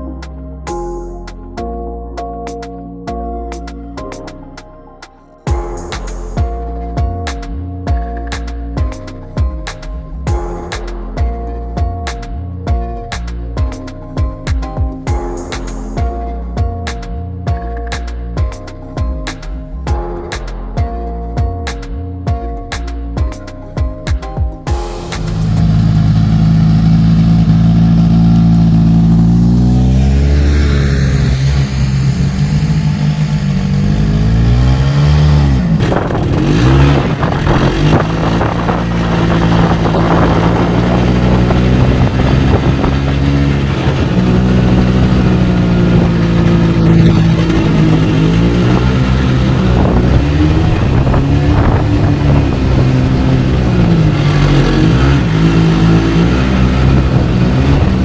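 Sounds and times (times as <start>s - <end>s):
car engine revving: 24.8s - 58.0s
rushing noise with clicks: 24.9s - 26.6s.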